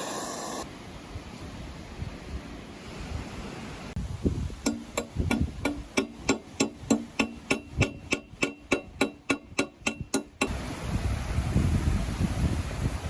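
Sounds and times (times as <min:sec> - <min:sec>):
hammer striking metal: 0:04.6 - 0:10.6.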